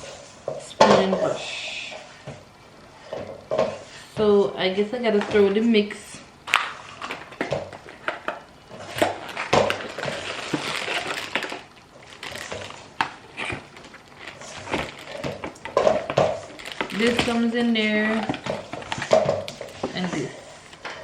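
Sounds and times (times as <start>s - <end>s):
packaging rustling and crinkling: 6.5s - 21.0s.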